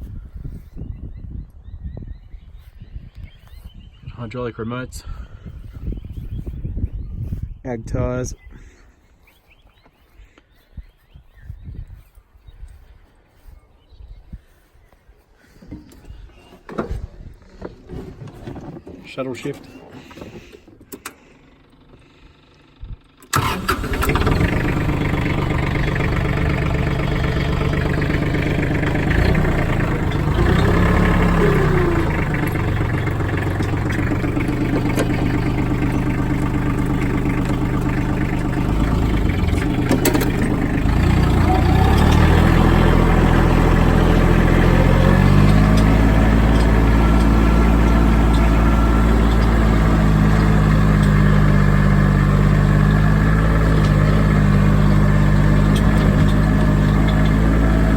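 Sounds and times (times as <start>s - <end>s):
tractor diesel engine running: 15.6s - 57.9s.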